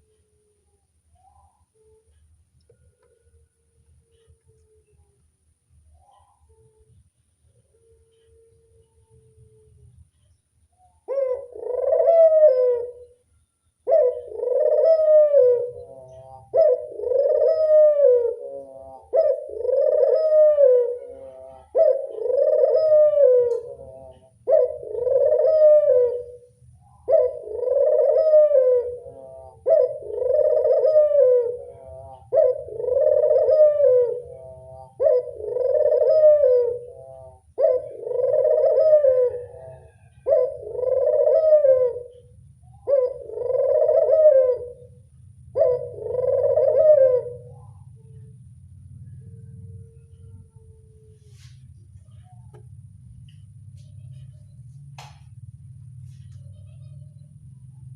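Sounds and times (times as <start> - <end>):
dove cooing: 0.0 - 57.9.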